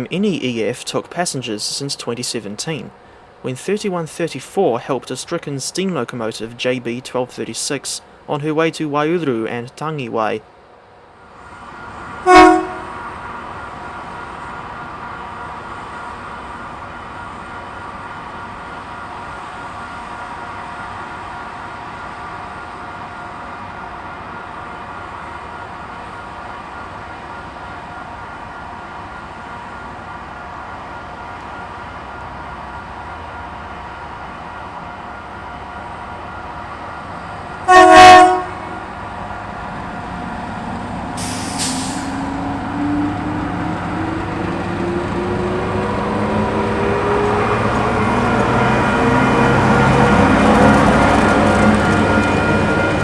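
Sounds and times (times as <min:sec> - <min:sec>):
train whine rising in pitch: 0:11.4 - 0:22.6, 0:31.0 - 0:53.0
train horn blast: 0:12.2 - 0:13.1, 0:37.6 - 0:39.0
brief hiss: 0:41.2 - 0:42.2.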